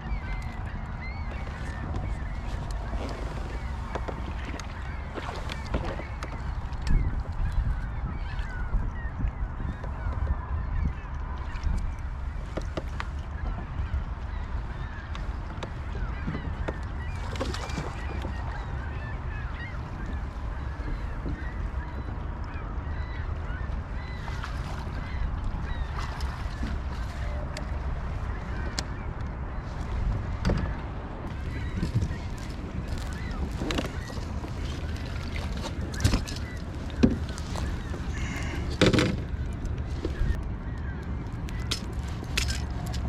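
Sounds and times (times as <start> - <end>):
wind rumbling on microphone: 0.0 - 43.0
short bird calls: 37.3 - 38.9.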